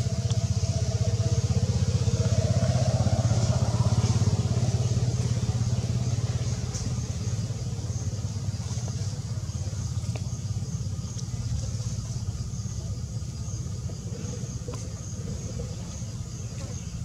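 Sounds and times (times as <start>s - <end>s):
low rumble: 0.0s - 12.8s.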